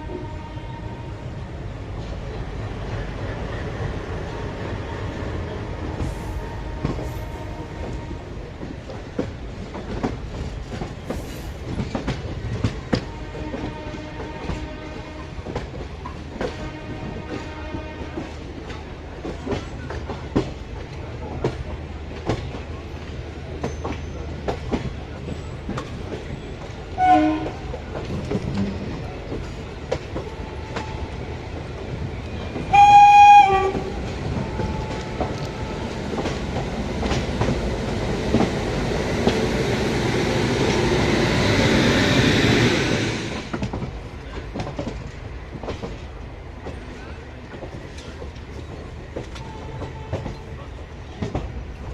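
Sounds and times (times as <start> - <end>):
train horn: 0.0 - 1.4, 6.0 - 8.4, 12.9 - 15.6, 16.4 - 18.5, 27.0 - 27.7, 32.6 - 36.1, 49.4 - 50.4.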